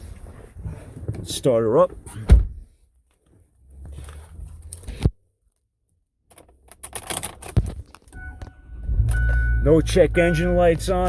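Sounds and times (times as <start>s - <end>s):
electronic dashboard tone: 8.2s - 11.0s.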